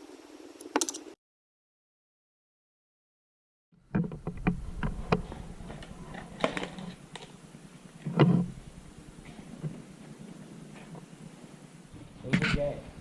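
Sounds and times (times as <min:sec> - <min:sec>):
low steady hum: 0:03.8 - 0:13.0.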